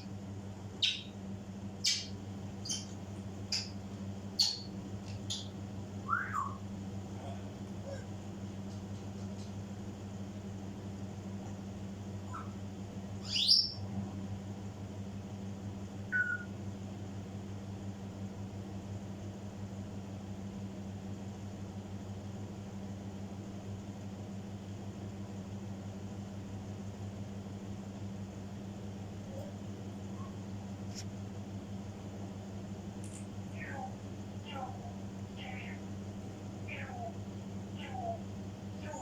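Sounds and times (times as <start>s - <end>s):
faint parrot chirp: 0.8s - 1.2s, 1.8s - 3.8s, 4.4s - 6.7s, 12.2s - 12.6s, 13.2s - 13.9s, 16.1s - 16.6s, 33.6s - 35.8s, 36.6s - 37.2s, 37.8s - 38.2s
parrot upward whistle: 6.1s - 6.6s, 16.1s - 16.5s.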